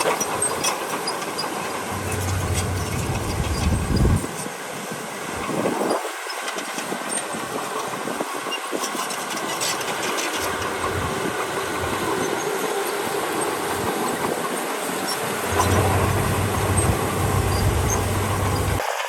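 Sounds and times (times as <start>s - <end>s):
light metallic clatter: 0.0s - 4.2s
heavy machinery running: 0.1s - 4.5s, 9.4s - 19.0s.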